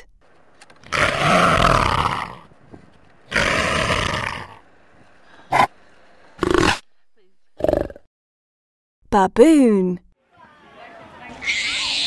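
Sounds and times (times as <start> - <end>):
leopard roaring: 0.8 - 2.5, 3.3 - 4.6.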